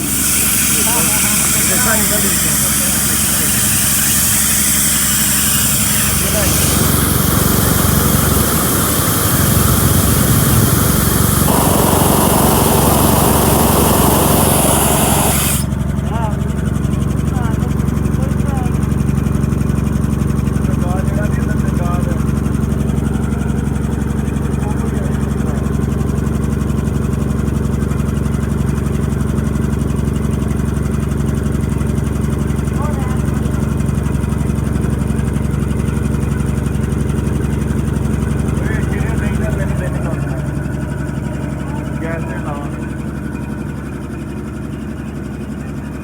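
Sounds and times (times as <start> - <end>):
hiss: 0.0 - 15.8
air compressor pulsing: 0.0 - 15.9.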